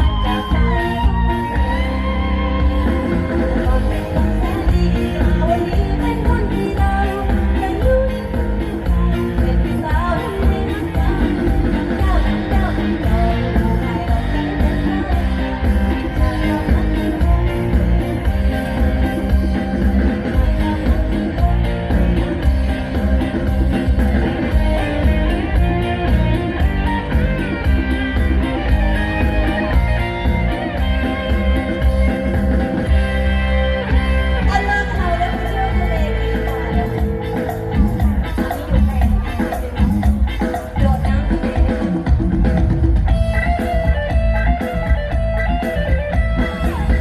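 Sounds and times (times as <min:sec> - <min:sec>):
woman singing: 0:00.0 - 0:22.9, 0:34.4 - 0:42.2
guitars: 0:00.0 - 0:47.0
heavy bass beat: 0:00.0 - 0:47.0
live band playing: 0:00.0 - 0:47.0.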